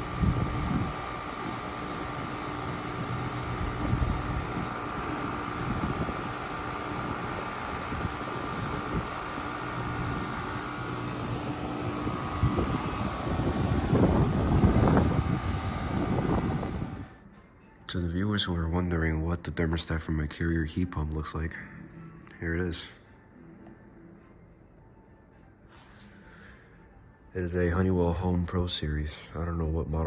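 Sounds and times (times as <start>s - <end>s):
heat pump mechanical hum: 0.0s - 17.3s
held whine: 0.0s - 17.3s.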